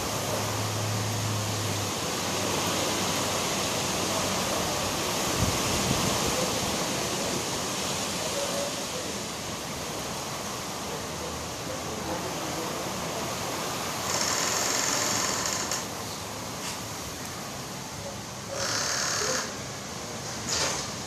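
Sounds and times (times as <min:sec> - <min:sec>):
heavy rain: 0:00.0 - 0:21.0
strong wind: 0:04.5 - 0:10.4.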